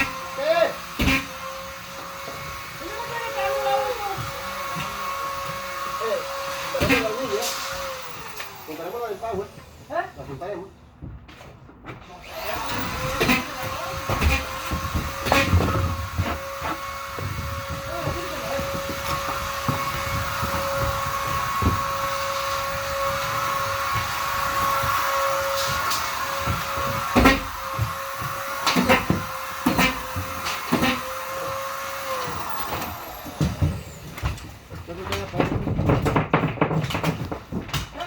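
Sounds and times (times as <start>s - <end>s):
vacuum cleaner whining: 0.0s - 10.7s, 12.2s - 35.8s
knocks and bumps: 11.0s - 38.0s.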